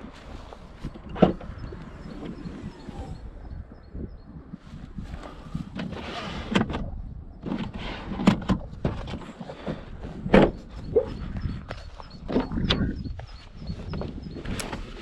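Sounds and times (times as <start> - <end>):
car boot clicks and knocks: 1.0 - 2.4, 10.2 - 11.1.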